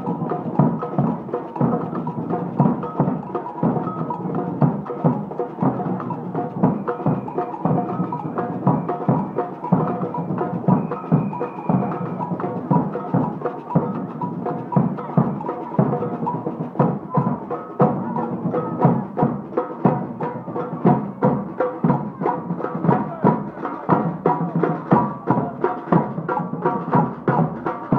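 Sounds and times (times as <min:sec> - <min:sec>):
drums beating: 0:00.0 - 0:27.9
marching band playing: 0:00.0 - 0:27.9.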